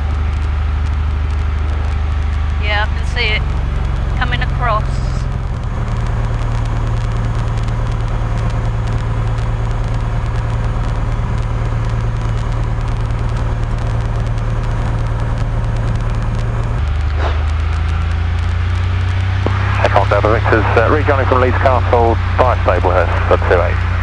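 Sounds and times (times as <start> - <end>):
aircraft engine idling: 0.0 - 24.0.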